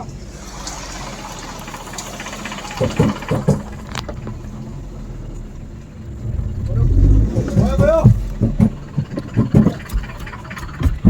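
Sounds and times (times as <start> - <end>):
vehicle engine running: 0.0 - 11.0
short thuds: 6.2 - 11.0.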